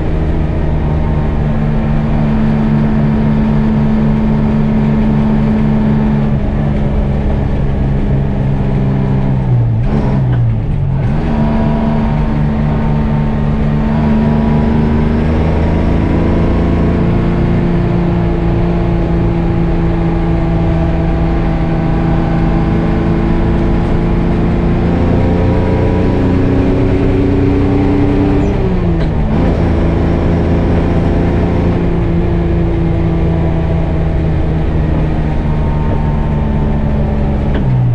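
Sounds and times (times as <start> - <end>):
truck diesel engine droning: 0.0 - 37.9.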